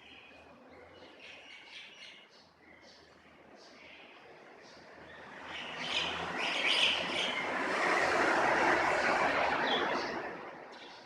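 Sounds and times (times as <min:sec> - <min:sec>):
vehicle passing by: 0:04.5 - 0:11.0.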